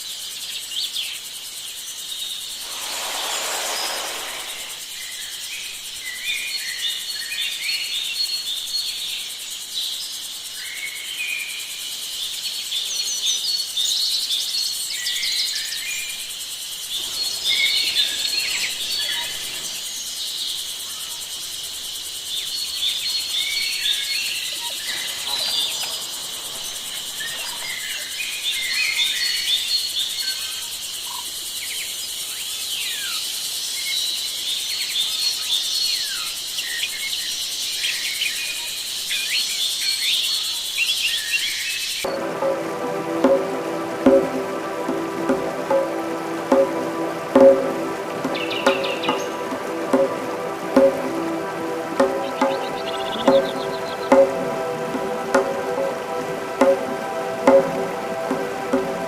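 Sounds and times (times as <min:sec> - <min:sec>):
high-pitched insect drone: 0:02.6 - 0:05.1
gliding whistles: 0:02.6 - 0:05.5.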